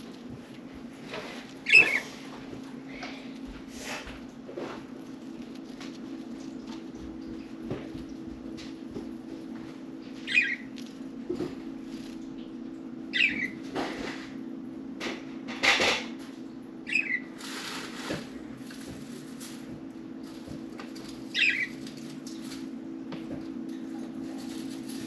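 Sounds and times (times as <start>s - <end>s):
budgerigars chirping: 1.7s - 2.1s, 10.3s - 10.6s, 13.1s - 13.6s, 21.3s - 21.7s.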